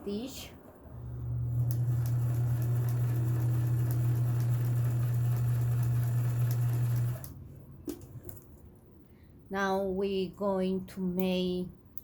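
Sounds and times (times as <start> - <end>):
sewing machine running: 1.2 - 7.3.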